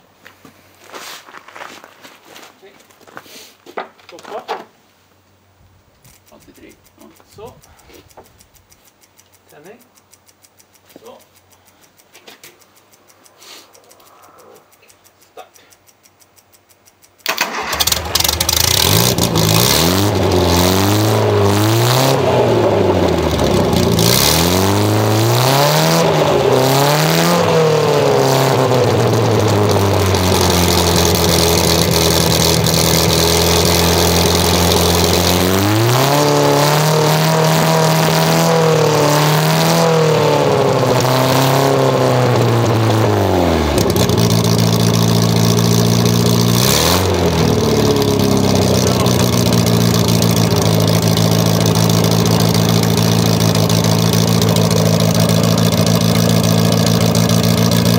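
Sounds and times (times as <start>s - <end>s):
car engine starting and revving: 17.2s - 57.9s.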